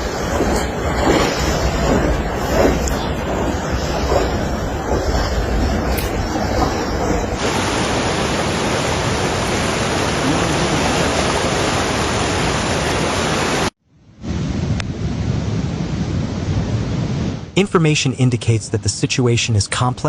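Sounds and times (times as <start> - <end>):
floodwater rushing: 0.0 - 13.7.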